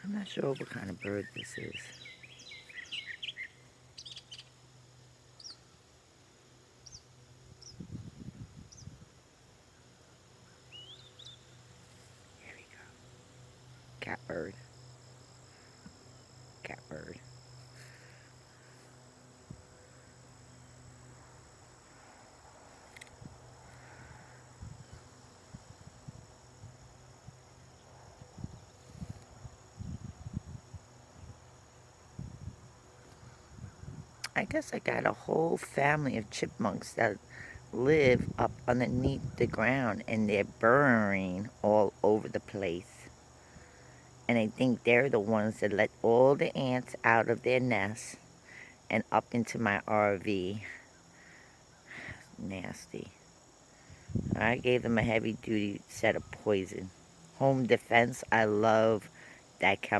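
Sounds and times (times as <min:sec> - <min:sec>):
bird chirping: 0:00.0 - 0:04.6, 0:05.3 - 0:05.7, 0:09.8 - 0:11.7
insects trilling: 0:00.0 - 0:59.9.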